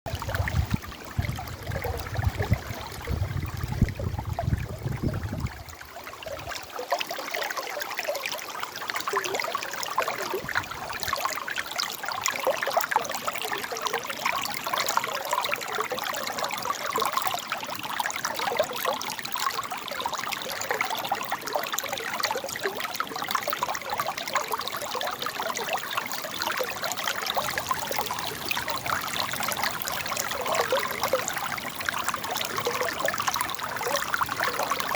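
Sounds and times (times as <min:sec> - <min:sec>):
river water babbling over rocks: 0:23.5 - 0:34.9.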